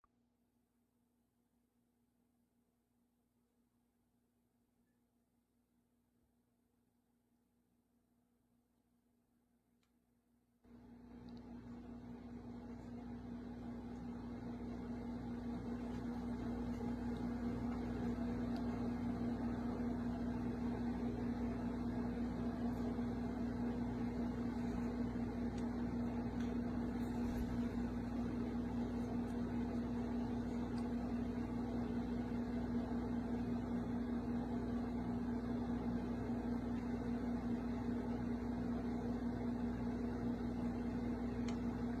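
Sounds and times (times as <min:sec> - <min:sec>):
low mechanical hum: 0:10.7 - 0:42.0.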